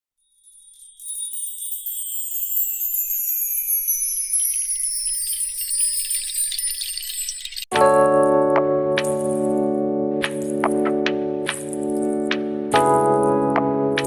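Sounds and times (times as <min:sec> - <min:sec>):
small bells jingling: 0:00.2 - 0:07.7.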